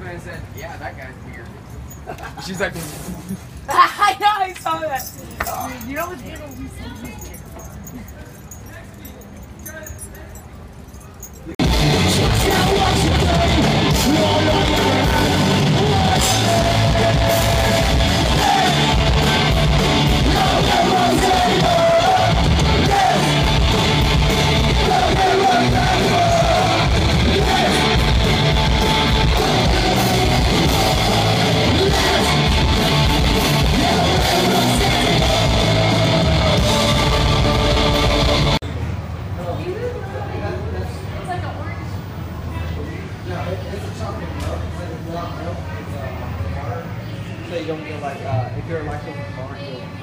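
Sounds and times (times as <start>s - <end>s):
distorted electric guitars: 11.6s - 38.6s
drums: 11.6s - 38.6s
shouted vocals: 11.9s - 38.6s.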